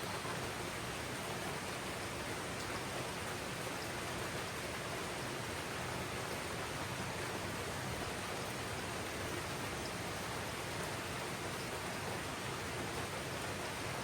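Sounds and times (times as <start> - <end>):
rain on foliage: 0.0 - 14.0.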